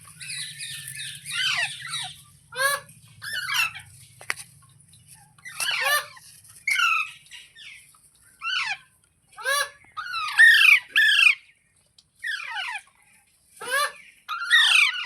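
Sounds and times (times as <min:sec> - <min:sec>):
parrot squawking: 0:00.2 - 0:03.9, 0:05.4 - 0:07.1, 0:09.4 - 0:11.4, 0:13.6 - 0:15.0.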